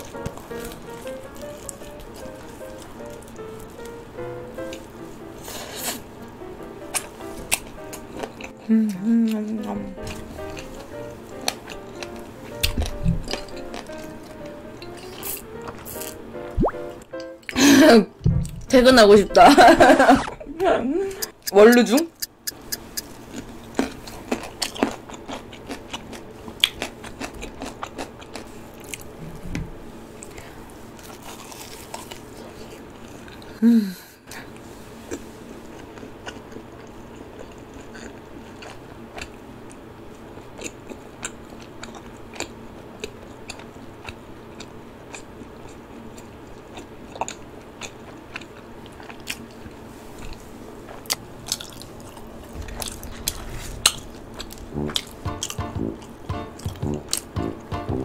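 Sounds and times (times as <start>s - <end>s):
crunching and chewing fried chicken: 0.0s - 6.1s, 6.8s - 16.2s, 21.2s - 29.2s, 30.1s - 33.6s, 34.3s - 58.0s
person humming: 8.5s - 10.0s, 54.6s - 58.0s.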